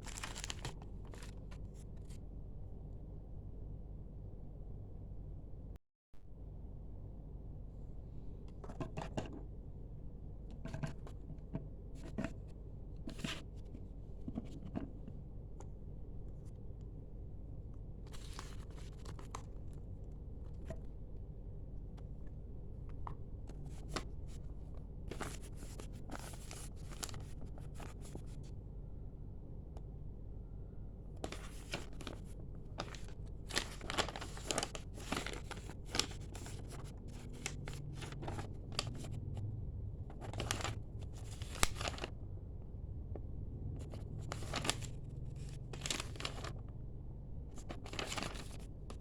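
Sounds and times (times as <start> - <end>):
cardboard and plastic rustling: 0.0 - 2.2, 18.1 - 19.8, 23.5 - 28.4, 31.2 - 39.2, 40.1 - 42.1, 43.8 - 46.7, 47.5 - 49.0
steady low hum: 0.0 - 49.0.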